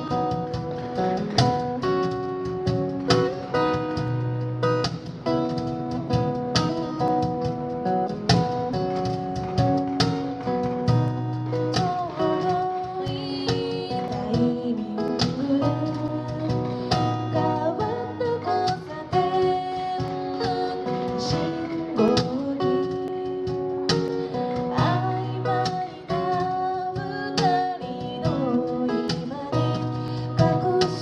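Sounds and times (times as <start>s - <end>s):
acoustic guitar strumming: 0.0s - 31.0s
person singing: 11.7s - 31.0s.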